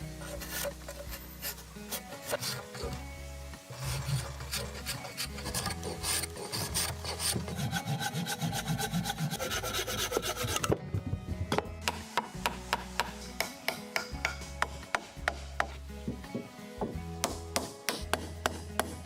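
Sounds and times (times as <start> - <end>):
hand tool scraping wood: 0.0 - 3.1, 3.7 - 15.8.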